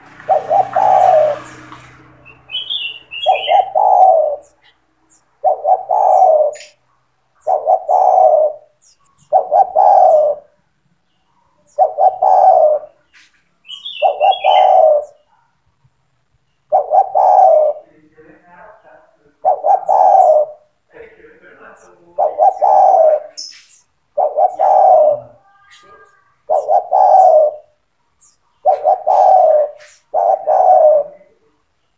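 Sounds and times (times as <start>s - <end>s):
dove cooing: 0.0s - 6.8s, 7.4s - 10.6s, 11.7s - 13.1s, 13.7s - 15.5s, 16.7s - 17.9s, 18.8s - 20.8s, 21.8s - 31.5s
high bird chirps: 0.2s - 15.4s, 21.8s - 31.0s.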